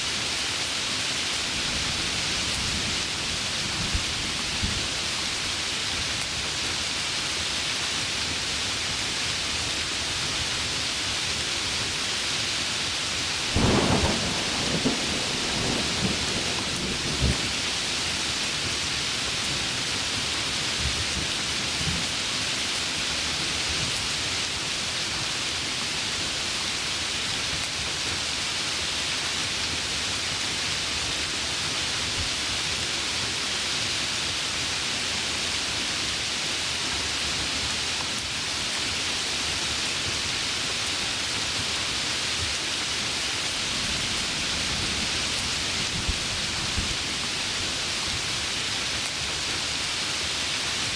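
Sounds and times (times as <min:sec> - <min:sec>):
heavy rain falling: 0:00.0 - 0:50.9
low rumble of thunder: 0:13.5 - 0:18.8.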